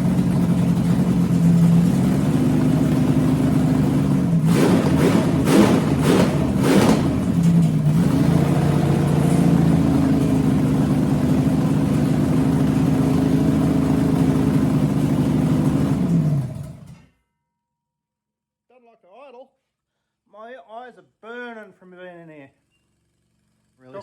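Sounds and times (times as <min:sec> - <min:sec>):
car engine idling: 0:00.0 - 0:17.0
engine sharp bursts: 0:00.0 - 0:17.0.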